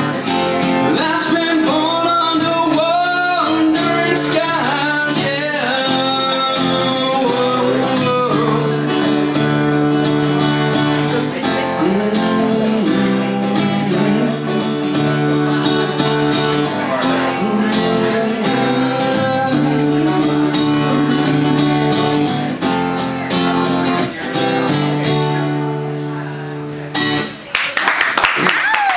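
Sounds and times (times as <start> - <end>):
person singing: 0.0 - 9.6, 10.2 - 22.6
strummed guitar: 0.0 - 27.5.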